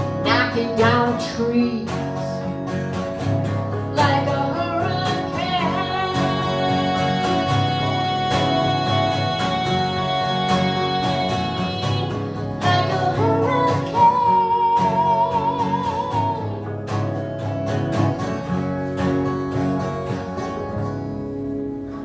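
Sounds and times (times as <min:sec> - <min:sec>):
person singing with vibrato: 0:00.0 - 0:02.5, 0:03.9 - 0:16.7
acoustic guitar strumming: 0:00.0 - 0:22.0.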